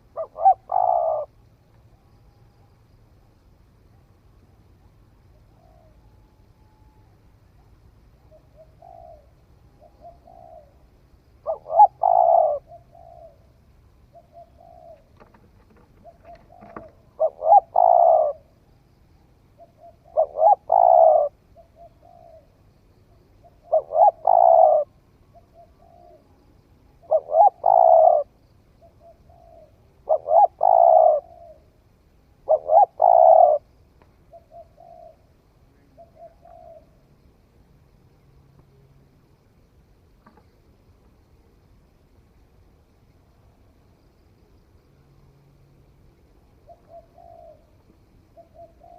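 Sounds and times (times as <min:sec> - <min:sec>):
dove cooing: 0:00.0 - 0:01.5, 0:06.8 - 0:18.7, 0:19.6 - 0:37.1, 0:46.3 - 0:48.9.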